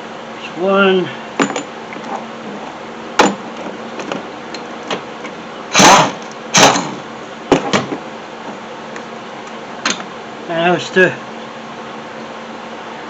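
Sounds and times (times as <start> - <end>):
harsh tool bursts: 5.7 - 7.0.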